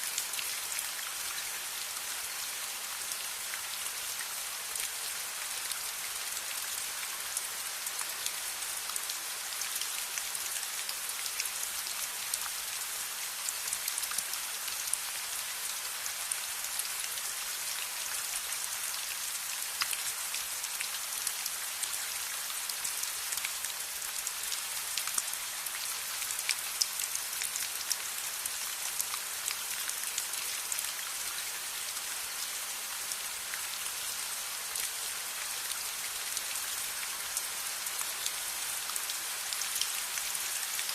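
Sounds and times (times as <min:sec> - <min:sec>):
steady rain hiss: 0:00.0 - 0:40.9
raindrops ticking on a surface: 0:19.1 - 0:32.1.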